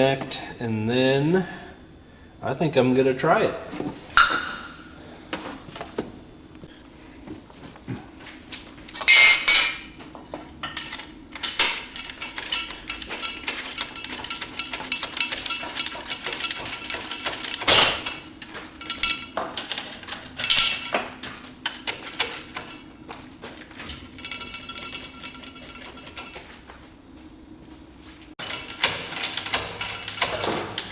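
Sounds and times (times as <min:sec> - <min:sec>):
metal tools clanking: 0:09.0 - 0:26.7, 0:28.4 - 0:30.9.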